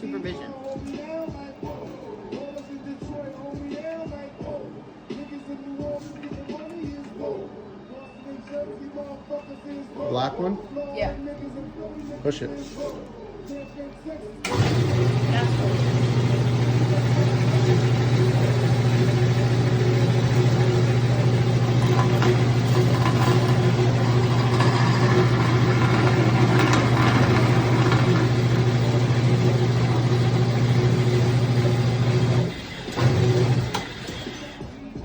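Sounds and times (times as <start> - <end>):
bandsaw motor humming: 14.4 - 34.6.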